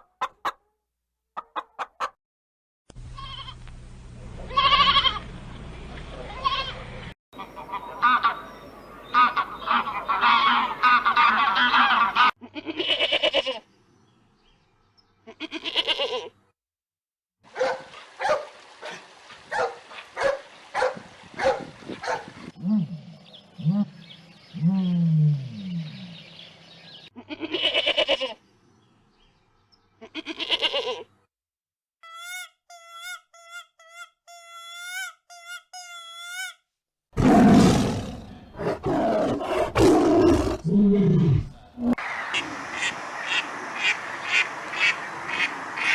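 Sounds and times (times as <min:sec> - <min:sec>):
loud rough animal call: 0:37.2 - 0:42.1.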